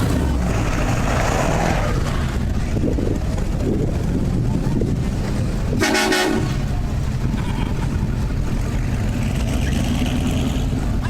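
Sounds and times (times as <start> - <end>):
engines running: 0.0 - 11.0
vehicle horn honk: 5.8 - 6.6.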